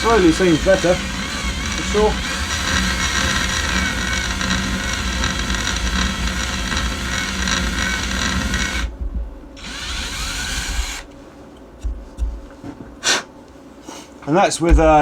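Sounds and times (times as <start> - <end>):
power drill boring into metal: 0.0 - 8.9, 9.6 - 11.0.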